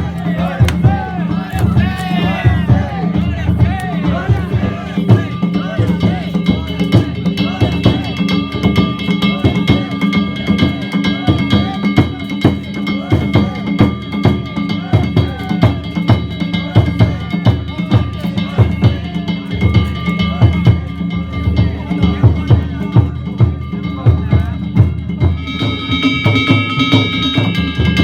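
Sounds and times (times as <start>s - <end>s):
taiko drums beaten fast: 0.0s - 28.0s.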